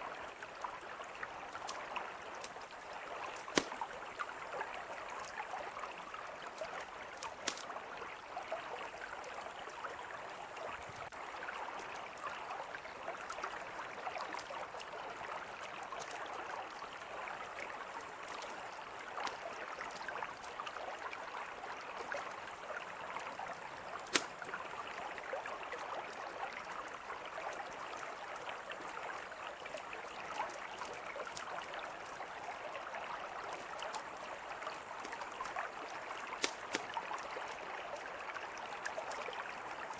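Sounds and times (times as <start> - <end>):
campfire crackling: 1.6 - 4.4, 6.2 - 7.7, 23.8 - 24.8, 36.2 - 37.3.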